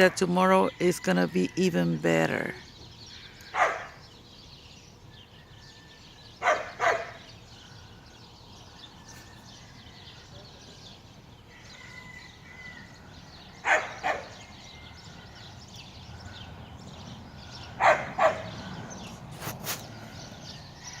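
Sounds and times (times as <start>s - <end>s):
small dog yapping: 3.5s - 4.0s, 6.4s - 7.2s, 17.8s - 18.5s.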